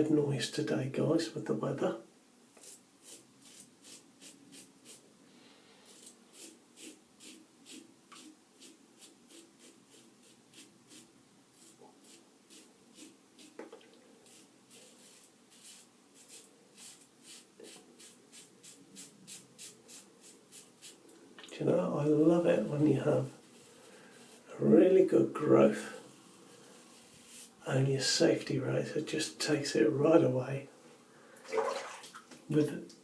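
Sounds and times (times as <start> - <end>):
razor scraping stubble: 5.9 - 13.6.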